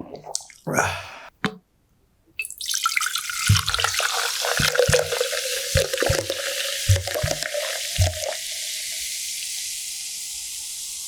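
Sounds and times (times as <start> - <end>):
tap water running into sink: 2.4 - 9.7
low knocks: 3.5 - 4.0, 5.8 - 8.3.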